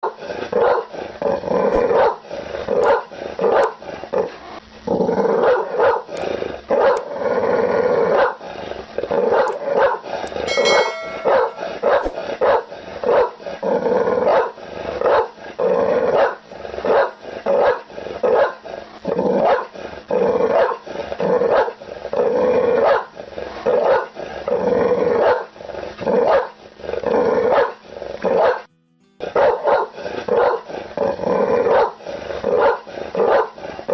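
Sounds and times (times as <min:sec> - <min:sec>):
dog growling: 0:00.0 - 0:11.2, 0:12.7 - 0:28.7, 0:29.4 - 0:33.9
dog barking aggressively: 0:00.6 - 0:00.9, 0:01.7 - 0:03.8, 0:05.4 - 0:06.2, 0:14.3 - 0:15.3, 0:16.1 - 0:18.6, 0:19.4 - 0:19.7, 0:20.6 - 0:20.8, 0:21.4 - 0:21.8, 0:22.8 - 0:23.1, 0:23.7 - 0:24.2, 0:27.5 - 0:28.6, 0:29.4 - 0:30.8, 0:31.7 - 0:33.6.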